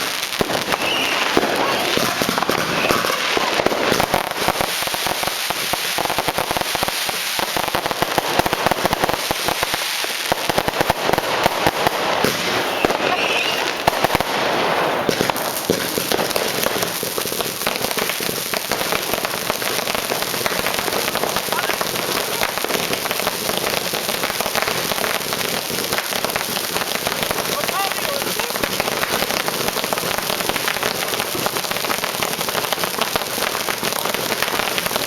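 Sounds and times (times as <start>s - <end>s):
fireworks crackling and banging: 0.0s - 35.0s.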